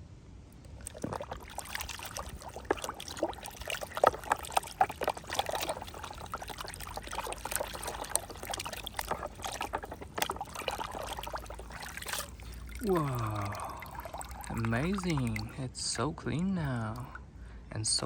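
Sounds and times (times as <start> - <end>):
splashes and drips: 0.6 - 15.7, 16.6 - 17.2
water pouring and trickling: 0.6 - 17.2.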